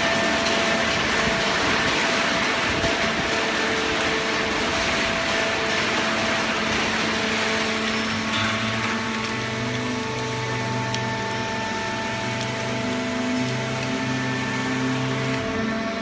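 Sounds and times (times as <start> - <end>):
deeper hum: 0.0 - 16.0.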